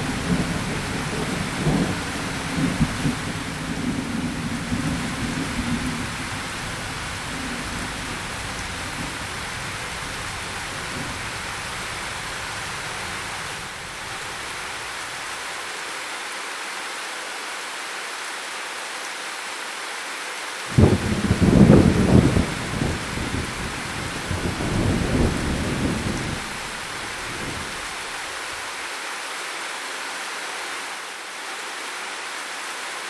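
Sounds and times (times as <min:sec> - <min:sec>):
thunderclap: 0:00.0 - 0:14.4, 0:20.7 - 0:28.2
thunder rumbling: 0:00.0 - 0:14.9, 0:20.7 - 0:28.6
heavy rain hissing: 0:00.0 - 0:16.2, 0:20.6 - 0:31.2.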